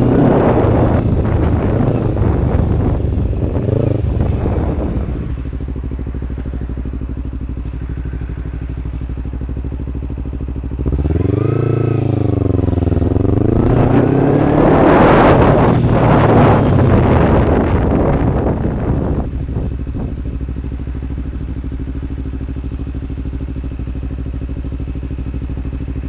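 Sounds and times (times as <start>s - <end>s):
wind noise on microphone: 0.0s - 6.4s, 10.9s - 20.7s
motorcycle engine idling and revving: 0.0s - 26.0s.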